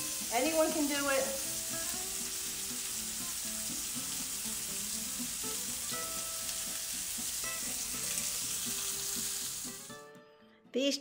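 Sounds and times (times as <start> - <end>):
chicken sizzling in a frying pan: 0.0 - 10.0.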